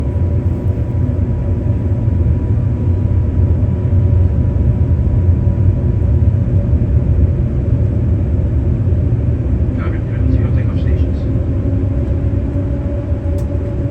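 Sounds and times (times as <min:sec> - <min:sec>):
aircraft cabin rumble: 0:00.0 - 0:13.9.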